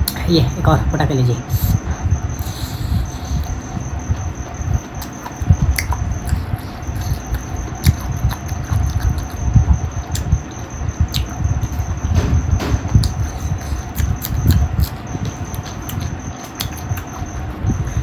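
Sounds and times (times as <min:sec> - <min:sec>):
lip-smacks and clicks: 0:05.0 - 0:09.4, 0:13.0 - 0:17.3
chewing mouth sounds: 0:05.0 - 0:10.4, 0:13.0 - 0:18.0.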